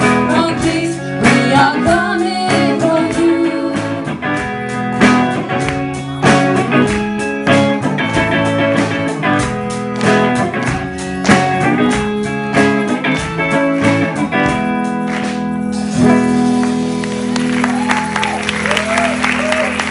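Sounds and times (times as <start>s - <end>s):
guitar instrumental music: 0.0s - 18.7s.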